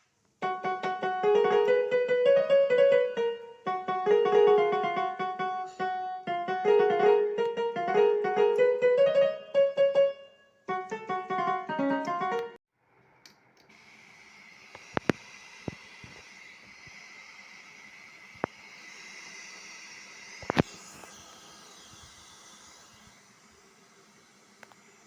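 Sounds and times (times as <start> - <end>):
keyboard speaker hiss with whine: 0.0 - 9.6, 19.5 - 25.0.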